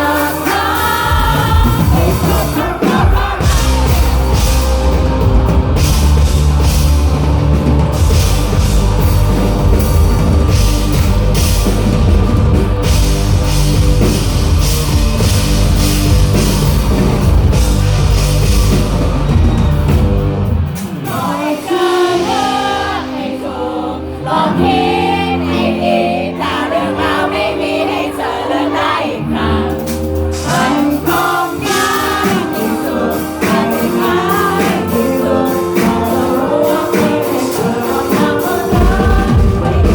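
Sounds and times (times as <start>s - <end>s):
person singing: 0.0s - 6.2s, 21.0s - 39.9s
live rock band playing: 0.0s - 39.9s.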